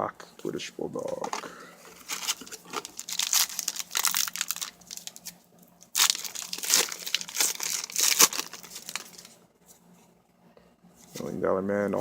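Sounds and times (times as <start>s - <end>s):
card pack wrapper crinkling and tearing: 1.1s - 9.3s.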